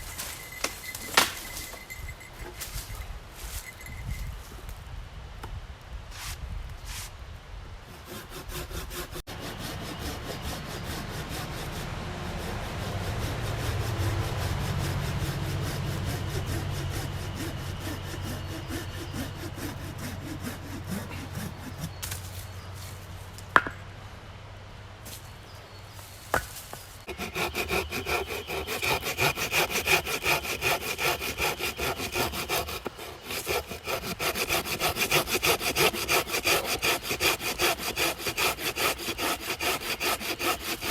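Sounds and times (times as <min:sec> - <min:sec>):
hand saw cutting wood: 0:07.9 - 0:22.2, 0:27.1 - 0:40.9.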